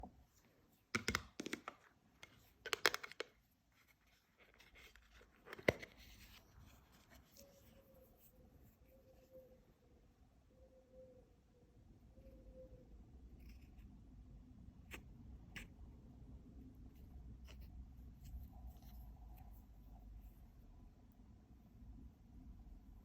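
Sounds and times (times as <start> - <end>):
faint steady hum: 1.7 - 23.0.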